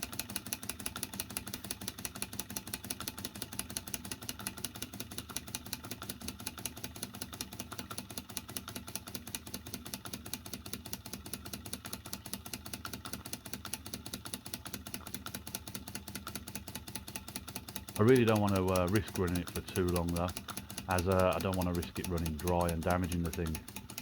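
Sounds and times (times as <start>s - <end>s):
toy steam engine ticking: 0.0s - 24.0s.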